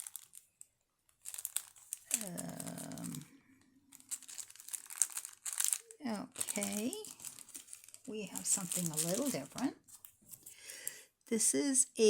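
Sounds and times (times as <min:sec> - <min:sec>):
packaging crinkling: 0:00.0 - 0:10.6
person humming: 0:02.1 - 0:03.3.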